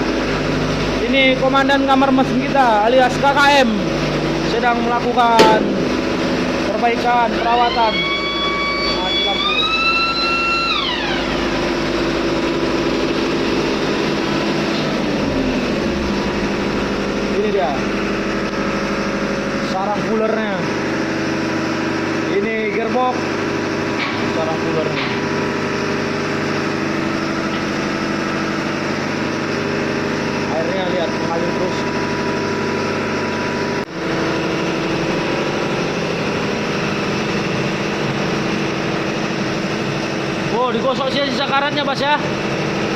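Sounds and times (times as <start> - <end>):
engine room machinery running: 0.0 - 42.9
low hum falling: 0.0 - 42.9
high whine sliding down: 4.5 - 19.3.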